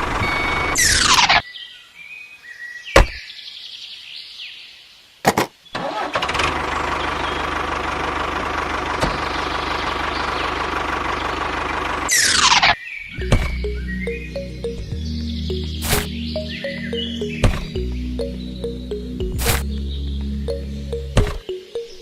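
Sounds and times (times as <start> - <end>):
vehicle engine starting and running: 0.0 - 0.8, 5.8 - 21.5.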